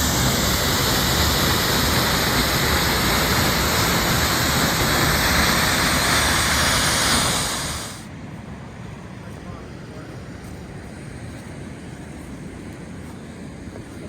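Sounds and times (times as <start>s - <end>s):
waterfall rushing: 0.0s - 8.0s.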